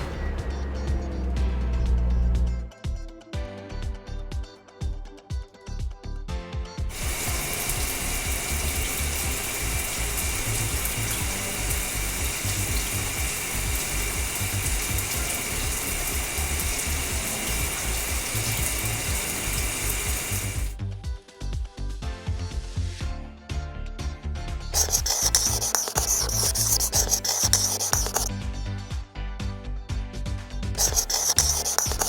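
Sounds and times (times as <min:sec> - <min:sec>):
low pulsing beat: 0:00.0 - 0:03.1
hissing water spray: 0:06.9 - 0:20.8, 0:24.8 - 0:28.3, 0:30.8 - 0:32.0.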